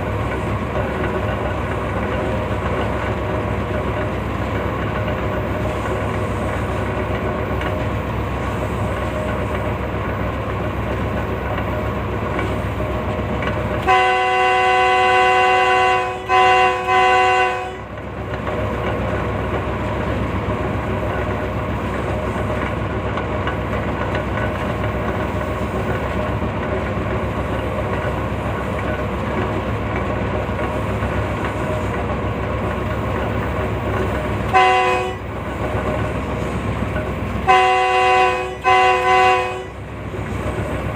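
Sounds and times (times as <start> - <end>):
train wheels rumbling on rails: 0.0 - 40.9
train horn blasts: 13.8 - 17.9, 34.5 - 35.3, 37.4 - 39.9.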